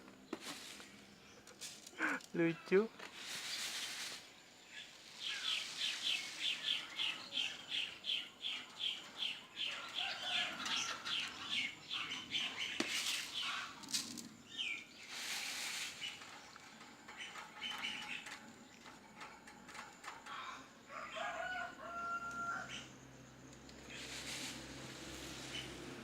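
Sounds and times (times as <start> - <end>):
small bird chirping: 0.0 - 20.8.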